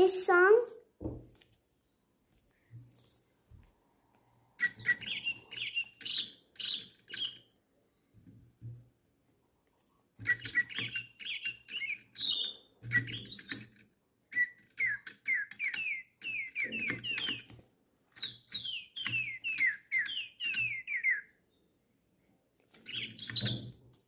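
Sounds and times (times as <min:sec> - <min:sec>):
toy bird electronic chirps: 0:04.6 - 0:07.6, 0:10.2 - 0:17.5, 0:18.2 - 0:21.3.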